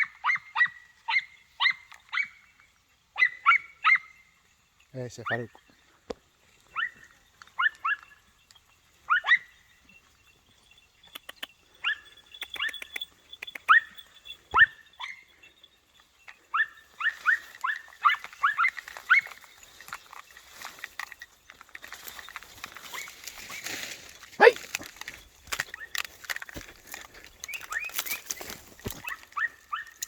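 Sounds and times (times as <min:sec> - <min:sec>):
puppies yelping: 0:06.6 - 0:21.1, 0:24.4 - 0:30.0.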